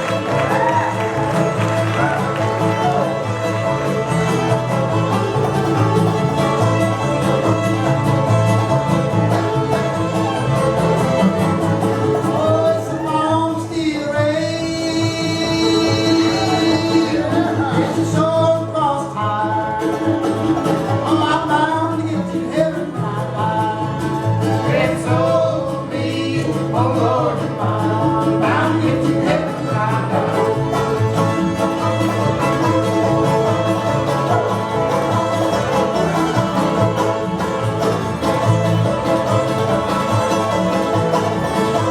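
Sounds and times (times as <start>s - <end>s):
string band playing: 0.0s - 41.9s
singing voice: 12.3s - 20.3s, 20.9s - 30.7s.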